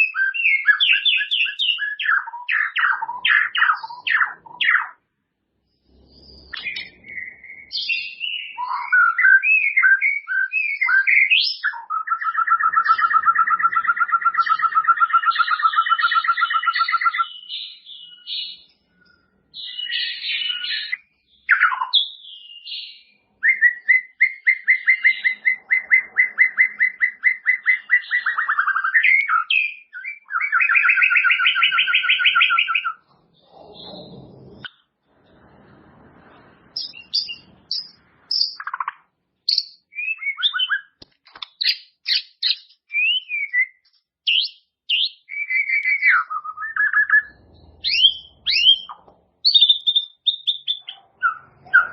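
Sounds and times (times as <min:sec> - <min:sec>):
songbird singing trills and whistles: 0:00.0 - 0:05.0, 0:05.7 - 0:34.8, 0:36.8 - 0:51.9
noisy rustle: 0:33.1 - 0:38.3, 0:47.2 - 0:49.4.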